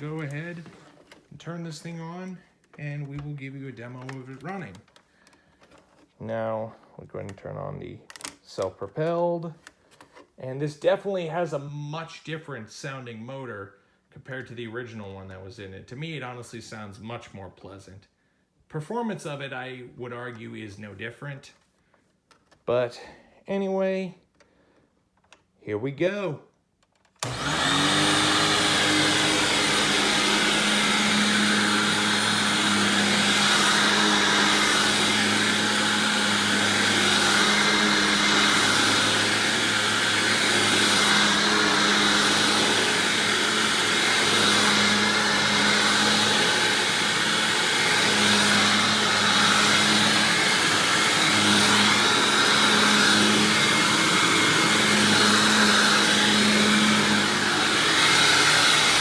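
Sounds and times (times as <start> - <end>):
vacuum cleaner motor hum: 0.0 - 6.0, 27.2 - 59.0.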